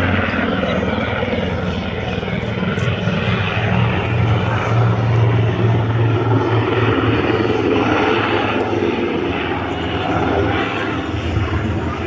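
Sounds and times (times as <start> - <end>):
aircraft engine overhead: 0.0 - 12.0.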